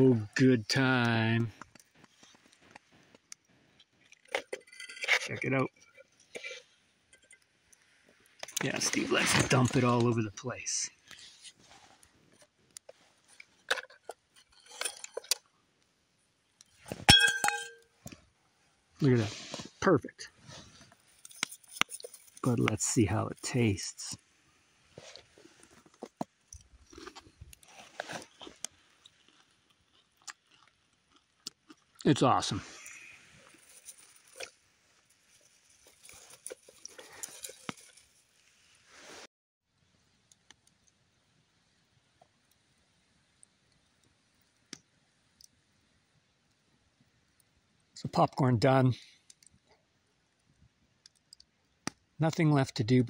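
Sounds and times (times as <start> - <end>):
metal pot clanking: 17.0 - 17.8
popcorn rustling and clicking: 20.6 - 22.9
popcorn being chewed: 25.0 - 32.1, 32.8 - 38.0.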